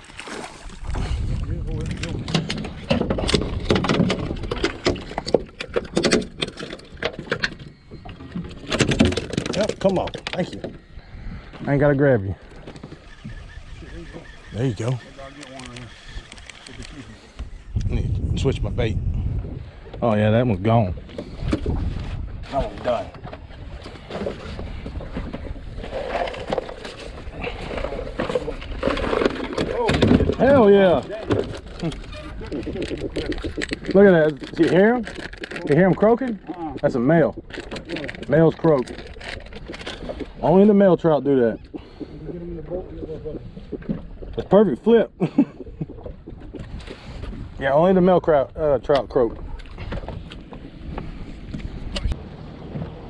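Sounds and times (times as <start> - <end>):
water splashes: 0.0 - 7.4
wind rumbling on microphone: 0.0 - 53.0
gear clicks and knocks: 1.9 - 7.7, 8.3 - 10.7.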